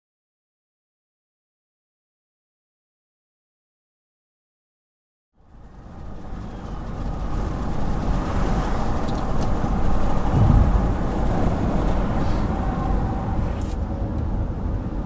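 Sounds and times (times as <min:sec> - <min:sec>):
fire engine approaching: 0:05.4 - 0:15.0
road noise: 0:05.4 - 0:15.0.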